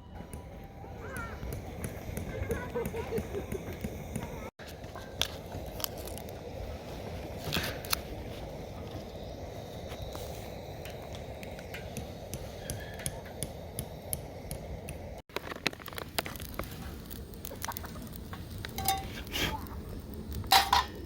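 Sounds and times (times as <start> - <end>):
metal cookware clattering: 18.8 - 19.2, 20.5 - 21.0.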